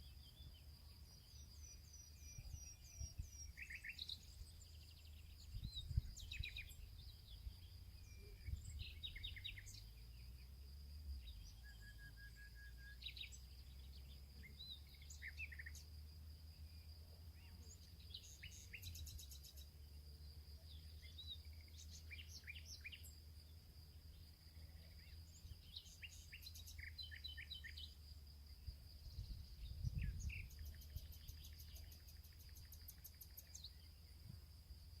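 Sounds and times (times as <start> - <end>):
birds chirping: 0.0 - 10.3, 17.3 - 20.0, 20.6 - 28.0, 28.6 - 34.2.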